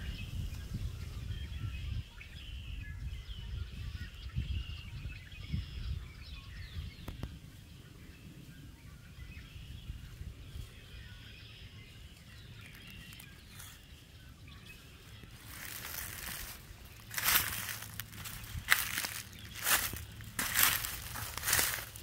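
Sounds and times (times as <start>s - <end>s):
wild birds chirping: 0.0s - 22.0s
low rumbling noise: 15.3s - 22.0s.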